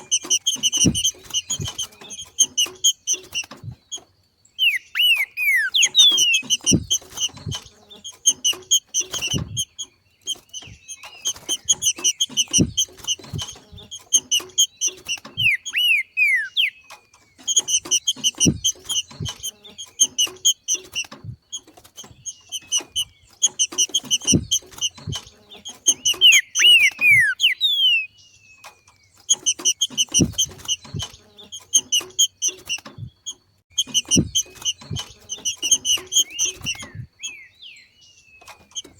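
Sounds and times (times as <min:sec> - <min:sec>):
bird chattering and whistling: 0:00.0 - 0:04.0, 0:04.6 - 0:21.2, 0:22.2 - 0:28.2, 0:29.2 - 0:38.9
low thumps: 0:00.5 - 0:02.6, 0:05.8 - 0:07.8, 0:33.8 - 0:37.1.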